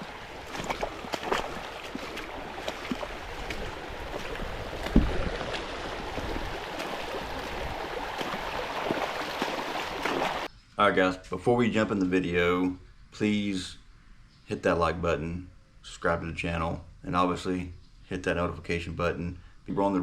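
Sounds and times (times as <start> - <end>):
river water splashing: 0.0 - 10.5.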